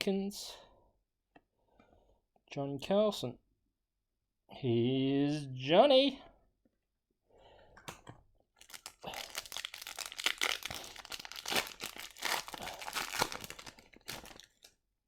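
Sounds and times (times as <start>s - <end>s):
card pack wrapper crinkling and tearing: 8.6s - 14.8s.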